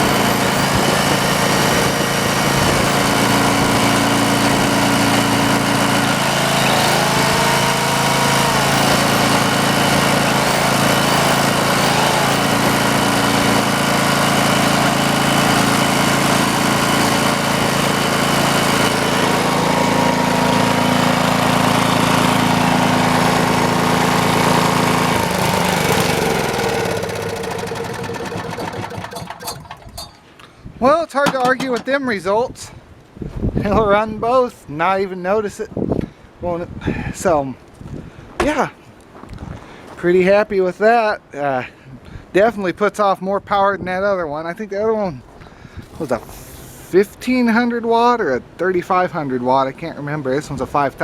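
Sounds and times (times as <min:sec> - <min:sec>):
electric drill spinning: 0:00.0 - 0:29.9
power tool motor running: 0:00.0 - 0:30.3, 0:46.0 - 0:47.0
generator engine running: 0:00.0 - 0:30.5, 0:31.1 - 0:32.0, 0:45.5 - 0:47.1.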